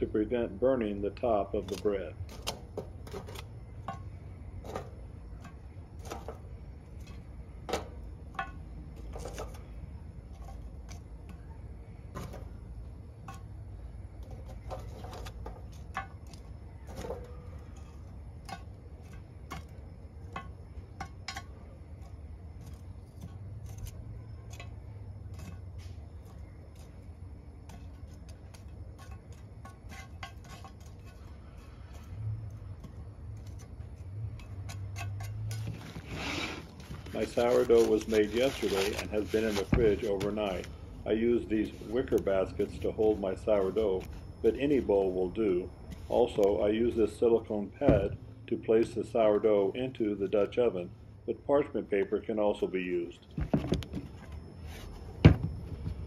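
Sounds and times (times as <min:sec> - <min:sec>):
metal tongs clinking on charcoal: 0:00.2 - 0:35.8, 0:37.1 - 0:45.6.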